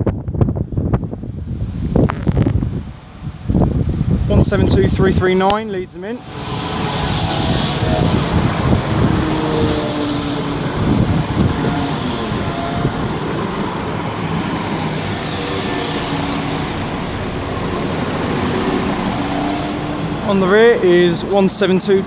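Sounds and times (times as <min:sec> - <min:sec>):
train wheels rumbling on rails: 0:00.0 - 0:22.0
diesel engines: 0:00.7 - 0:22.0
faint whining tones: 0:04.4 - 0:22.0.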